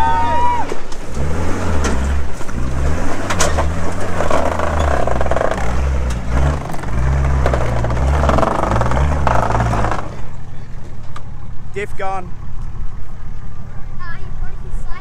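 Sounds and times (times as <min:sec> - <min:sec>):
engine revving under load: 0:00.0 - 0:12.9
sharp knocks: 0:03.2 - 0:10.2.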